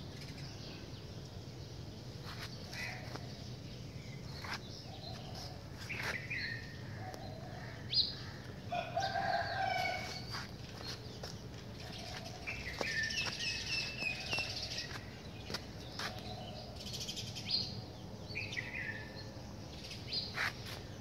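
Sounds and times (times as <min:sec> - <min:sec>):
birds calling: 0:00.0 - 0:21.0.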